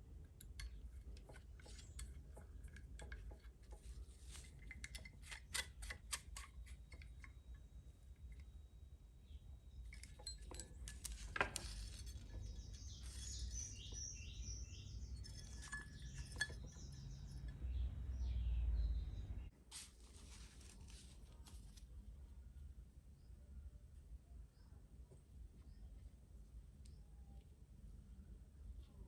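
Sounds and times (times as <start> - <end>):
small metal parts clinking: 9.8 - 13.9, 15.2 - 17.5.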